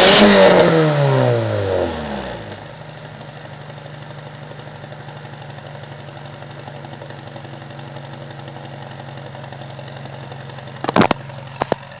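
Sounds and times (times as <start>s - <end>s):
car engine idling: 2.4s - 12.0s.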